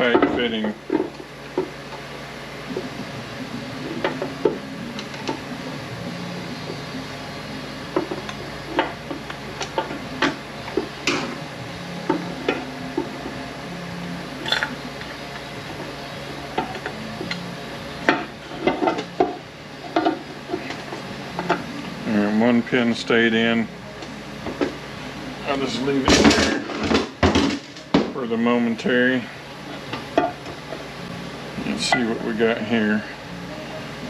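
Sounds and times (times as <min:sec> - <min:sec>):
low hum: 0:00.7 - 0:26.0.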